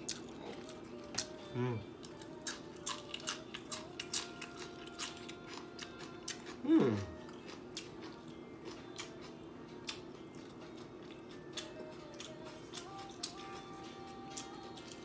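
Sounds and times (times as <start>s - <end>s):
crunchy vegetable chewing: 0.0s - 15.0s
person saying mm: 1.5s - 1.9s, 6.6s - 7.1s.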